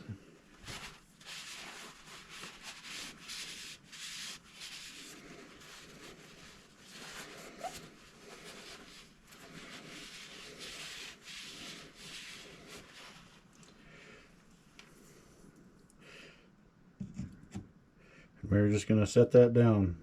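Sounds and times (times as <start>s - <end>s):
cloth rubbing on metal tube: 0.0s - 13.6s.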